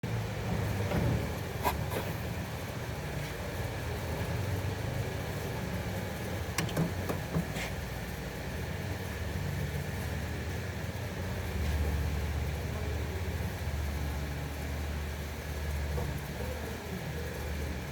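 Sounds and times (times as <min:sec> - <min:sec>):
low mechanical hum: 0:00.0 - 0:17.9
sharp clicks and knocks: 0:06.5 - 0:07.6.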